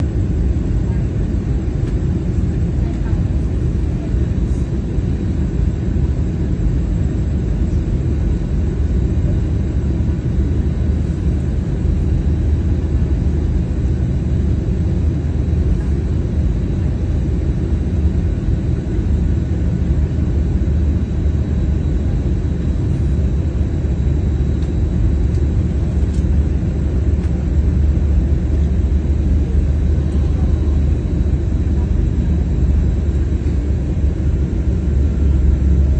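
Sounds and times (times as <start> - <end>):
airplane low rumble: 0.0 - 35.9.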